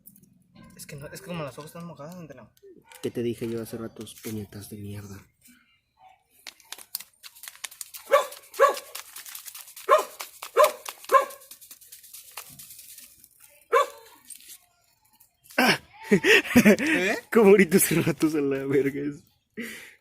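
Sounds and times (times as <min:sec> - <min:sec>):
dog barking: 0:08.1 - 0:09.0, 0:09.9 - 0:11.5, 0:13.7 - 0:14.1.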